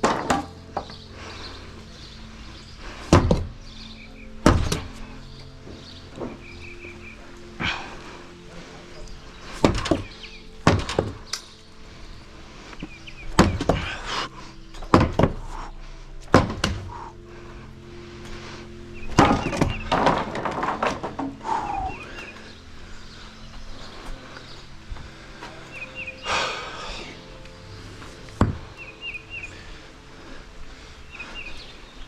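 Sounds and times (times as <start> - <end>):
wood rattling clatter: 0.0 - 1.6, 2.4 - 11.6, 12.7 - 14.1, 14.7 - 17.2, 19.0 - 23.0
thuds on wooden boards: 3.1 - 3.5, 4.4 - 4.9, 9.6 - 10.1, 10.7 - 11.2, 13.4 - 14.0, 14.8 - 15.5, 16.3 - 16.9, 19.2 - 21.9.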